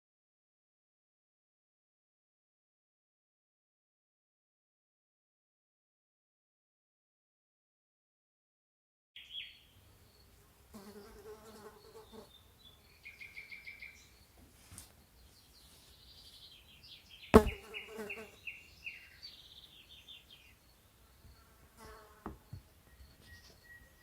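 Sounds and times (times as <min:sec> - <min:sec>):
birds chirping: 0:09.2 - 0:24.0.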